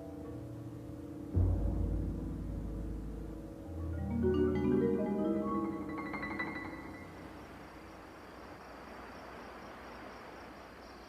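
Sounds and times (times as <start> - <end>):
mallet instrument notes: 0.0 - 7.6
night insects chorus: 0.0 - 11.0.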